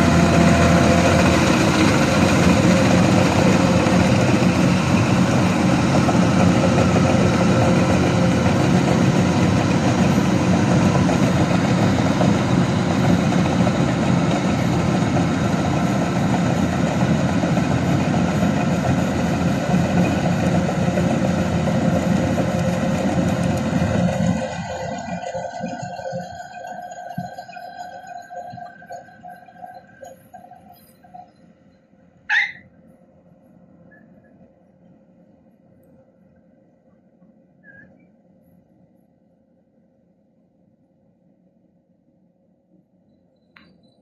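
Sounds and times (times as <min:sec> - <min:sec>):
combine harvester running: 0:00.0 - 0:31.3.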